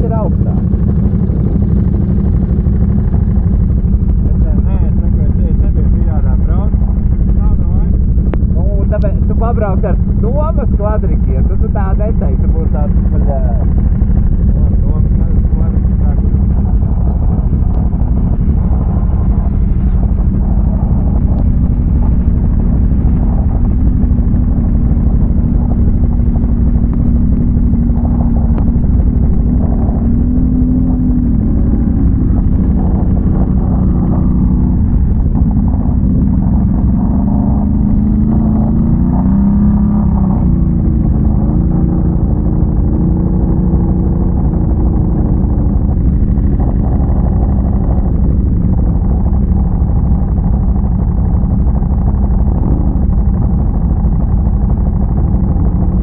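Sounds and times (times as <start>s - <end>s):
atv engine revving: 0.0s - 56.0s
heavy low rumble: 0.0s - 56.0s.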